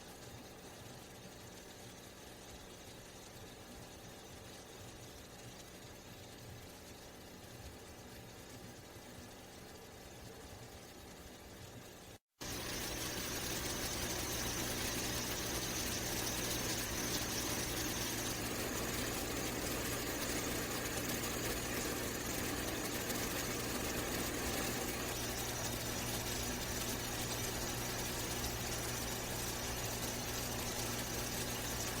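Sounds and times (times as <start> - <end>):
constant hiss: 0.0 - 32.0
machine-like hum: 10.0 - 32.0
thin high whine: 12.4 - 32.0.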